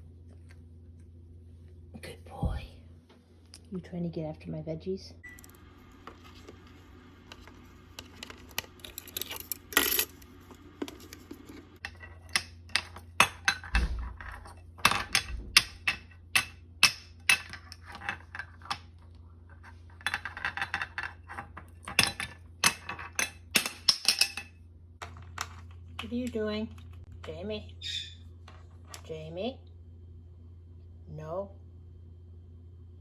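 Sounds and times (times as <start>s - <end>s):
faint steady hum: 0.0s - 33.0s
utensils and dishes clattering: 20.1s - 24.5s.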